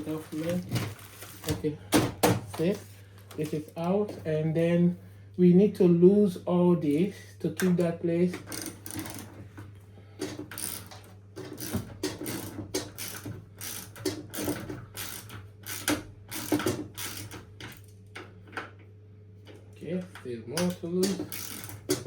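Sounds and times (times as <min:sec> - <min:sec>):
steady low hum: 0:00.0 - 0:22.0
ratchet wrench clicking: 0:10.5 - 0:11.0, 0:11.6 - 0:17.4, 0:20.6 - 0:22.0.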